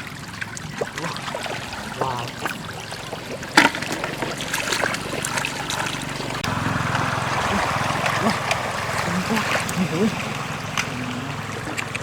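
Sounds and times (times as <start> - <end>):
flowing water: 0.0 - 12.0
low motor hum: 0.0 - 12.0.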